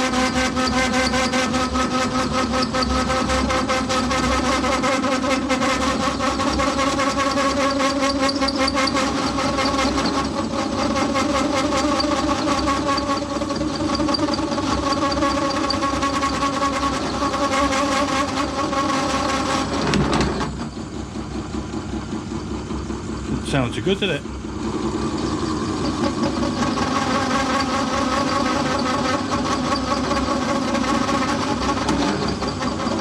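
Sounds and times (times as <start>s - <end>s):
metal lathe running: 22.4s - 33.0s.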